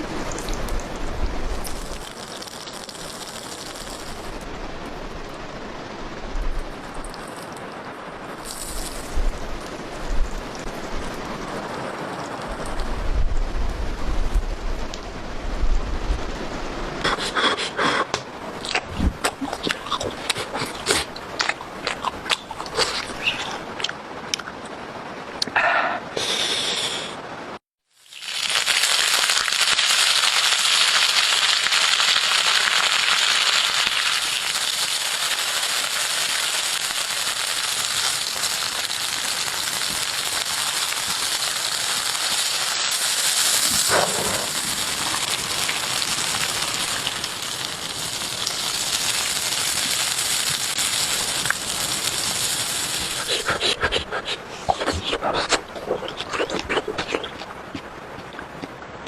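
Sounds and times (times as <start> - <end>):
food sizzling on hot stone: 0.0 - 5.6, 6.6 - 13.0, 18.6 - 23.7, 27.8 - 57.4.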